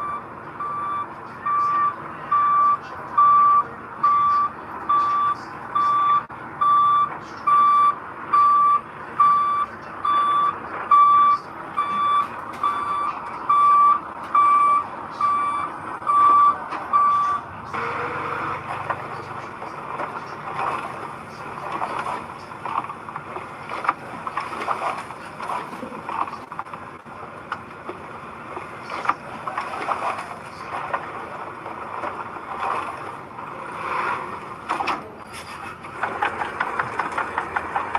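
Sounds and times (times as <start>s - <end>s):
reversing alarm beeping: 0.0s - 18.6s
vehicle engine running: 0.0s - 37.9s.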